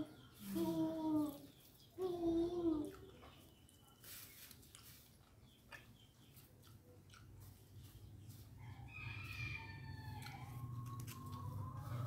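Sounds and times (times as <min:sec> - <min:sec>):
person chewing: 0:02.9 - 0:08.0.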